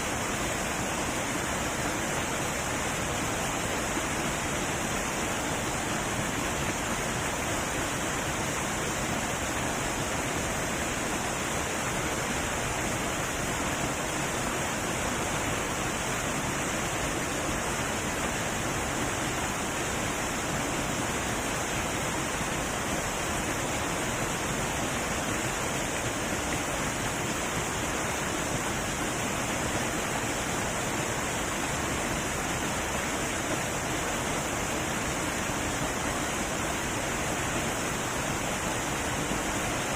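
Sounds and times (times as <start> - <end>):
heavy waterfall roaring: 0.0 - 39.9.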